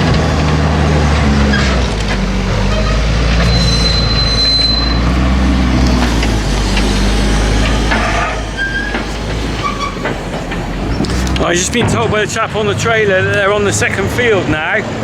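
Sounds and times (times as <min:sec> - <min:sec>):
diesel engine running under load: 0:00.0 - 0:15.0
high metallic squeal: 0:00.7 - 0:11.4.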